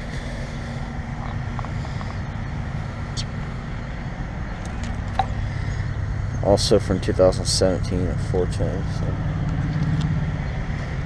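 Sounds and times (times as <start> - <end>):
heat pump unit humming: 0.0 - 11.0.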